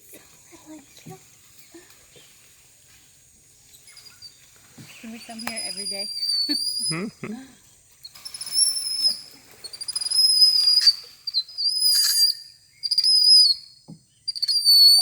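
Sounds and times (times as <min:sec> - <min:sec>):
high-pitched whistled calls: 0:03.7 - 0:07.2, 0:08.0 - 0:15.0.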